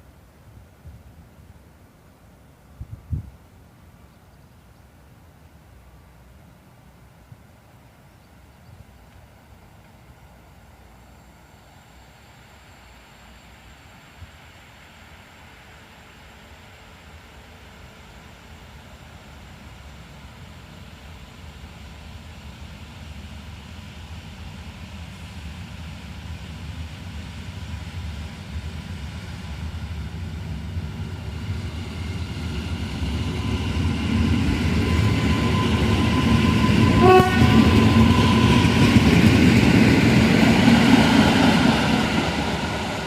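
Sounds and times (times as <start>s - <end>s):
electric train rumble and wheel noise: 0.0s - 43.0s
train horn blast: 36.7s - 38.5s.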